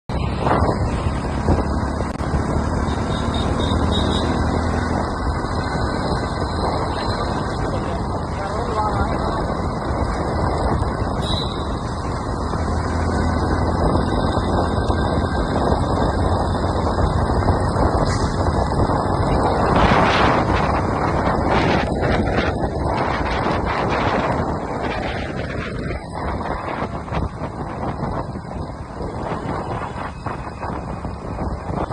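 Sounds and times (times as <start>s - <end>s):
road and wind noise: 0.0s - 31.9s
motorcycle engine running: 0.1s - 31.9s.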